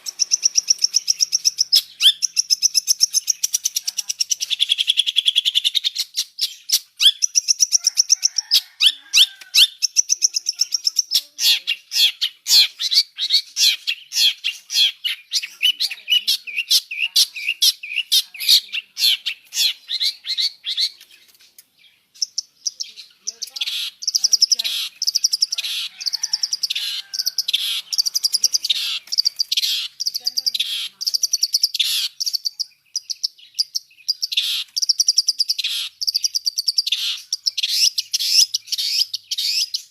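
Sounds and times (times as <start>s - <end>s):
shrike singing high chirps and trills: 0.0s - 39.9s.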